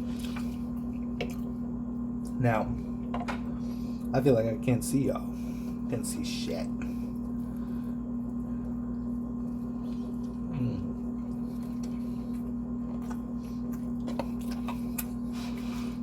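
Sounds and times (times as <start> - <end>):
steady electrical hum: 0.0 - 16.0
low voice hum: 2.3 - 13.8.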